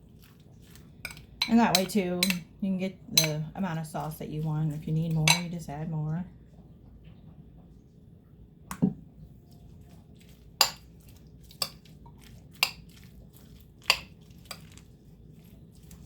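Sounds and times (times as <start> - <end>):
utensil clinking against bowl: 1.0 - 2.5, 3.2 - 3.5, 5.0 - 5.6, 10.6 - 14.8.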